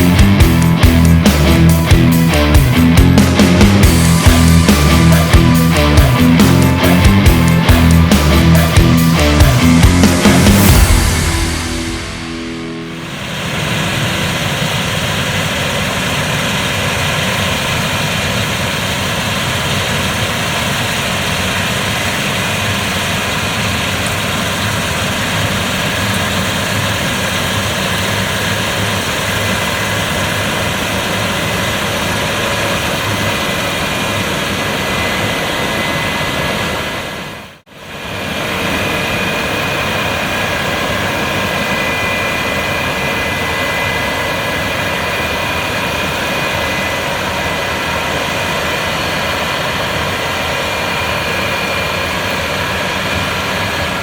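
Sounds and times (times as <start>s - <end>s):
combine harvester running: 0.0s - 54.0s
high machinery whine: 0.0s - 54.0s.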